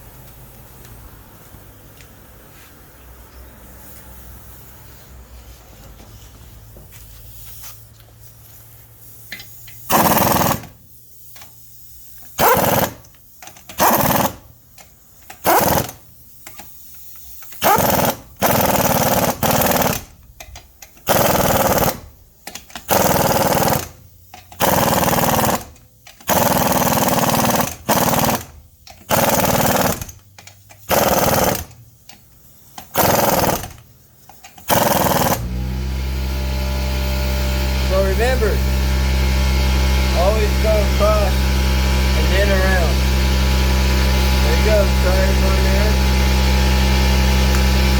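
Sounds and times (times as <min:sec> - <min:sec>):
impact wrench hammering: 0:09.3 - 0:10.8, 0:12.3 - 0:16.7, 0:17.4 - 0:32.2, 0:32.8 - 0:35.4, 0:40.0 - 0:47.9.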